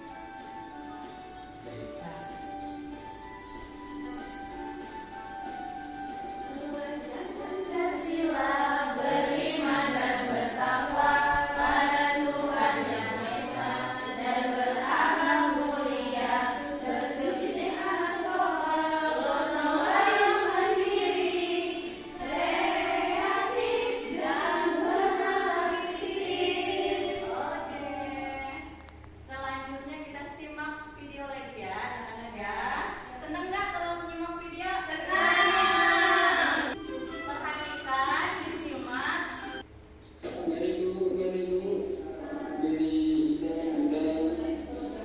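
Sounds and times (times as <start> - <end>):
voices singing together: 6.5 - 29.0, 34.9 - 36.8, 40.2 - 45.0.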